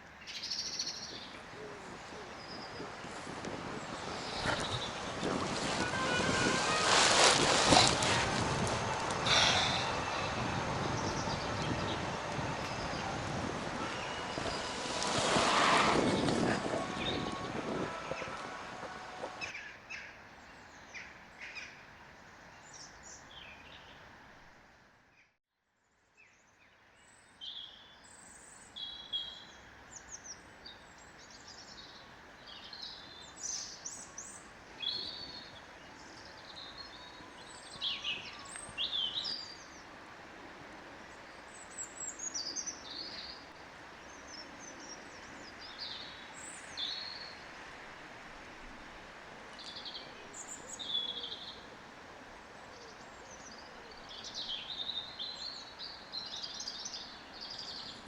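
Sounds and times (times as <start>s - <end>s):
steady background hiss: 0.0s - 24.9s, 28.2s - 58.0s
small birds chirping: 0.3s - 19.5s.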